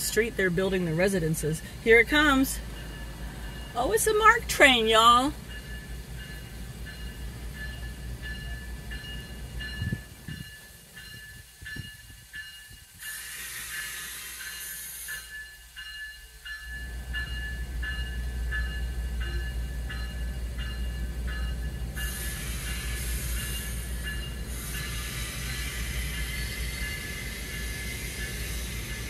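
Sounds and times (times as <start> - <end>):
crossing bell ringing: 0.0 - 29.0
train rolling with low rumble: 0.0 - 29.0
hiss of air: 12.9 - 15.4, 22.0 - 29.0.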